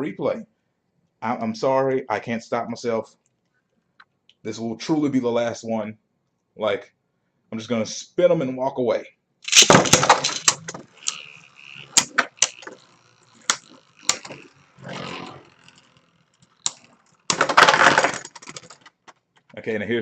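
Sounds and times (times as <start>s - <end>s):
spinning tops launching: 9.5s - 18.8s
spinning tops grinding clash: 9.5s - 18.9s
spinning tops clacking: 9.5s - 19.1s.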